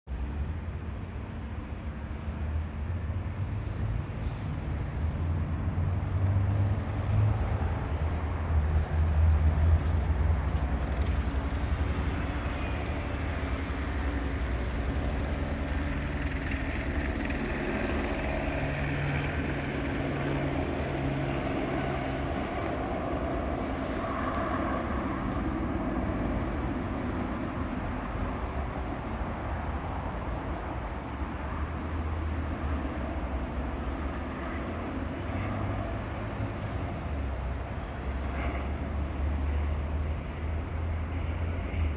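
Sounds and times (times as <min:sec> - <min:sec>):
low engine rumble: 0:03.4 - 0:35.2.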